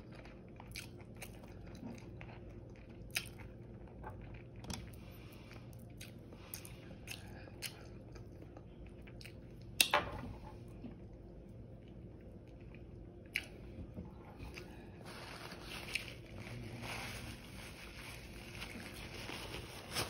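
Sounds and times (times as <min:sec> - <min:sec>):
crunchy chewing: 0:00.0 - 0:09.7.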